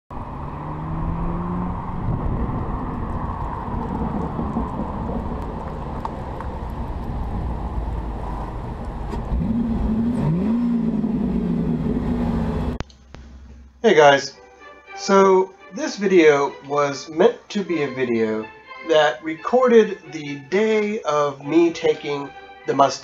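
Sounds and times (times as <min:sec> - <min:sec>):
road and wind noise: 0:00.1 - 0:13.8
car engine approaching: 0:00.1 - 0:15.7.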